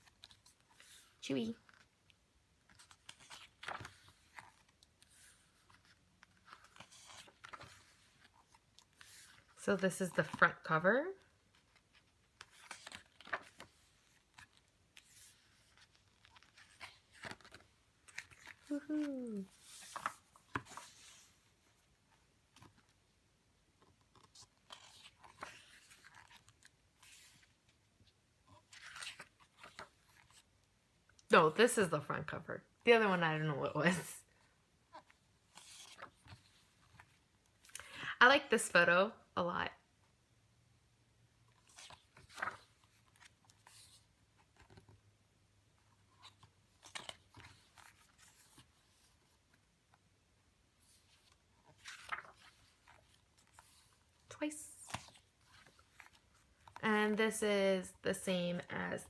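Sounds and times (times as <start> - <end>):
paper and cards rustling: 0.0 - 23.0, 23.7 - 30.5, 32.9 - 38.1, 41.5 - 45.0, 45.8 - 50.0, 50.8 - 59.0.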